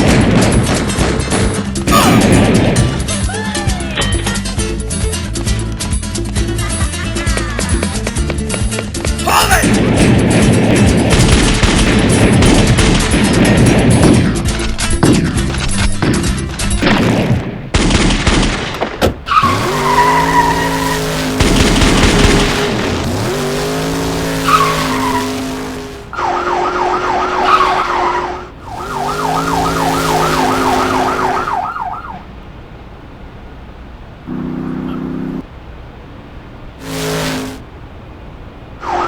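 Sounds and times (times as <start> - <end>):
rapid sharp cracks: 9.7 - 14.3, 15.0 - 26.1
tyre squeals: 19.3 - 21.2, 24.3 - 30.8
car engine revving: 19.3 - 31.7, 34.2 - 35.5, 36.8 - 37.7
police siren yelping: 24.2 - 32.2.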